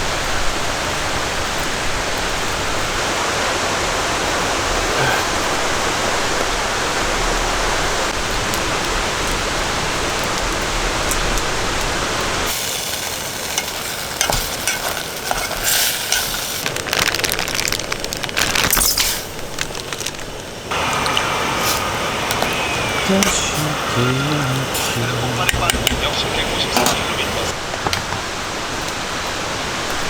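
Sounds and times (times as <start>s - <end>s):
dense rain: 0.0s - 30.0s
sizzling and crackling: 0.0s - 30.0s.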